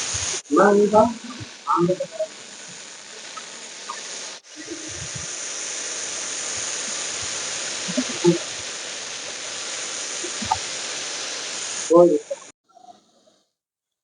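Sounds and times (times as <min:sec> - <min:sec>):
snake hissing: 0:00.0 - 0:12.9.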